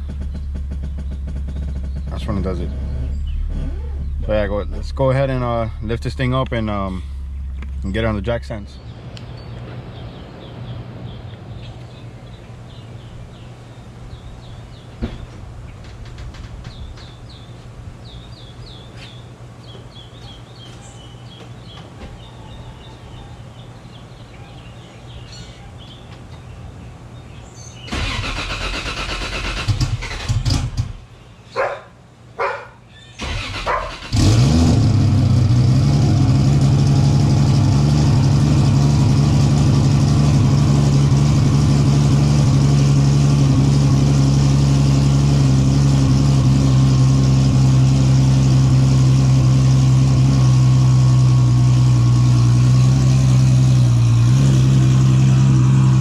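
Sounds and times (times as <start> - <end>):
car engine starting and idling: 0.0 - 9.2, 27.8 - 31.1, 33.2 - 56.0.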